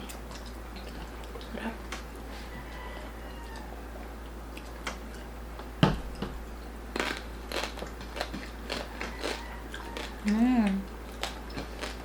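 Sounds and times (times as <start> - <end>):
crispy food crunching: 7.0 - 12.0.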